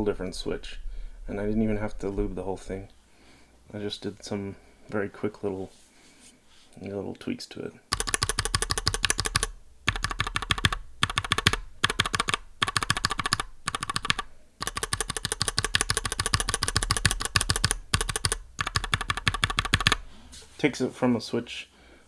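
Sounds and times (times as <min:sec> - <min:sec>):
mechanical keyboard keys clicking: 0:07.9 - 0:20.1.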